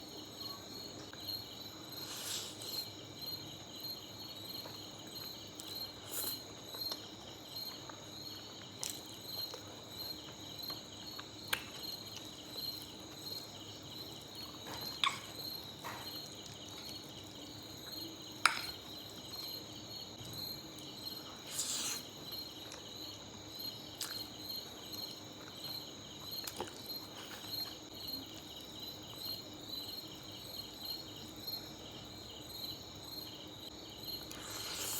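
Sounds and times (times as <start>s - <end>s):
insects chirping: 0.0s - 34.9s
person slurping spaghetti: 21.5s - 22.1s.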